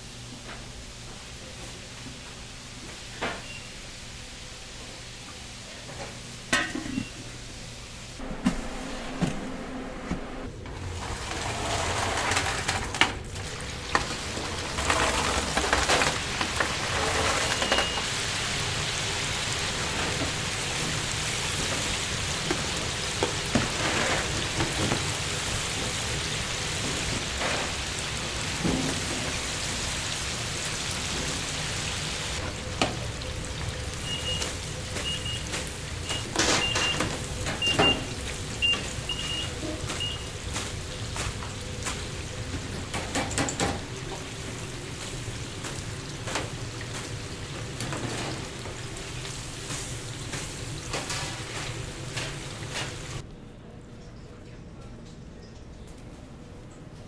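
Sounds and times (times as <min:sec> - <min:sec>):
chicken deep-frying in oil: 0:10.8 - 0:53.2.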